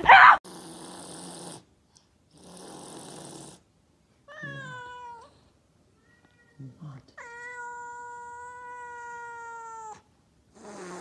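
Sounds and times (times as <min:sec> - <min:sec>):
cat meowing: 0:04.3 - 0:05.4, 0:06.0 - 0:10.1.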